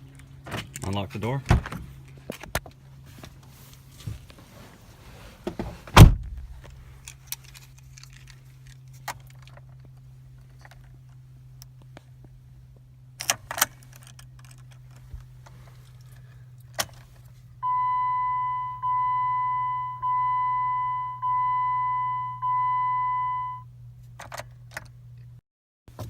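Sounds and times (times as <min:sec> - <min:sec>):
car warning chime: 0:17.6 - 0:23.7.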